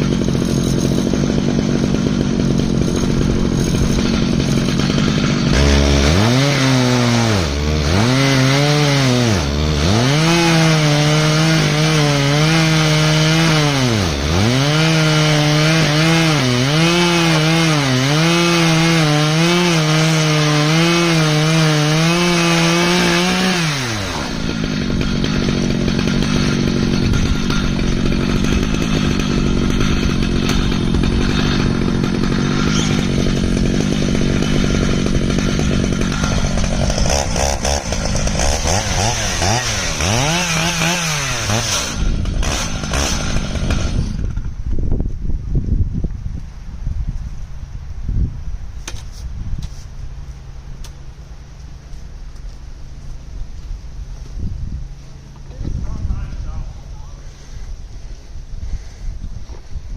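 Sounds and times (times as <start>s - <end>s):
chainsaw cutting log: 0.0s - 44.9s.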